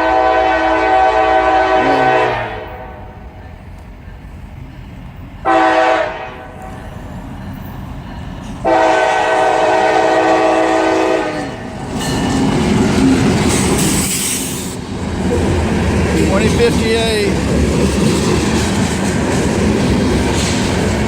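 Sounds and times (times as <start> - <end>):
locomotive air horn blasts: 0.0 - 3.2, 5.4 - 6.6, 8.6 - 11.6
train rumble and wheel clatter: 0.0 - 21.0.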